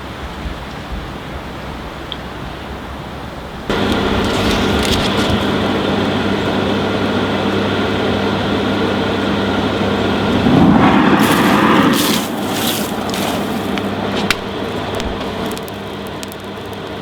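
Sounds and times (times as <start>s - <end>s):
electric air blower humming: 3.7s - 16.1s.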